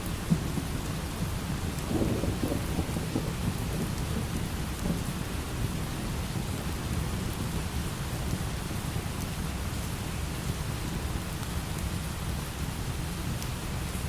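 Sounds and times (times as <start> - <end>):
low rumble of thunder: 0.0 - 8.5
light rain: 0.0 - 14.0.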